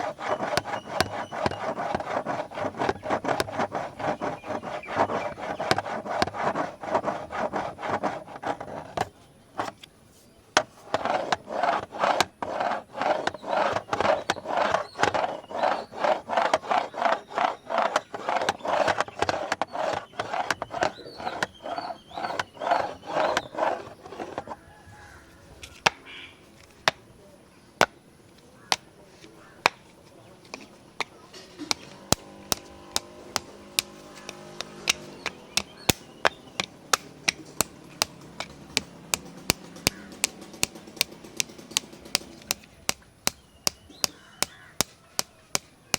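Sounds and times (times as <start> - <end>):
scratching on camera body: 0.0 - 27.0, 28.6 - 45.9
sharp taps: 29.6 - 45.9.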